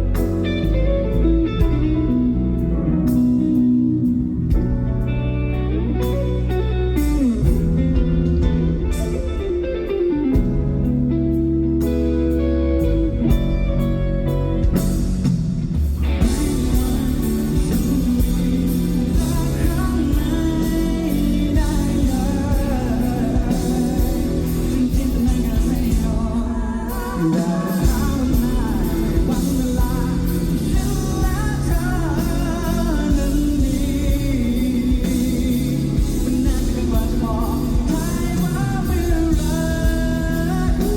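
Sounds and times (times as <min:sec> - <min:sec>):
guitar playing: 0:00.0 - 0:40.9
live pop-rock band: 0:00.0 - 0:40.9
person singing: 0:16.0 - 0:40.9.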